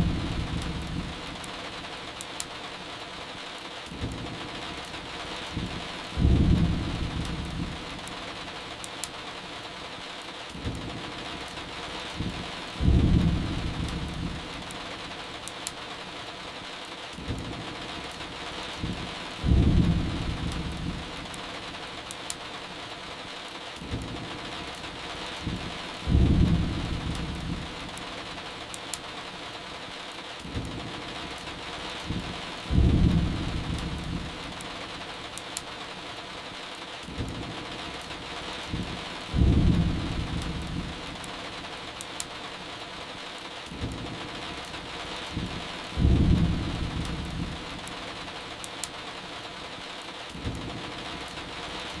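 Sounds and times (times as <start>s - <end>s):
thunder rumble: 0.0s - 1.4s, 5.4s - 8.1s, 12.1s - 14.7s, 18.8s - 21.3s, 25.3s - 27.9s, 32.0s - 34.6s, 38.4s - 41.3s, 45.1s - 47.9s
steady rain: 0.0s - 52.0s
wood fire crackling: 0.0s - 52.0s.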